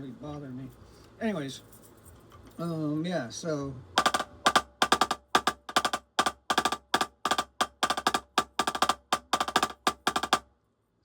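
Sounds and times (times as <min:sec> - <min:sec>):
drumsticks playing fast strokes on drum: 0:04.0 - 0:10.4.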